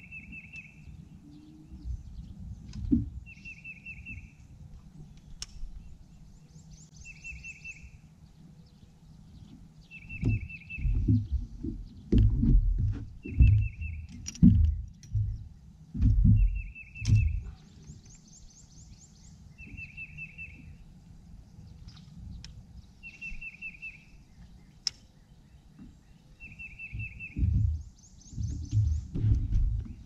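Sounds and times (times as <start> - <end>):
low thumps and rumble: 1.8 - 3.3, 9.4 - 17.6, 26.8 - 30.0.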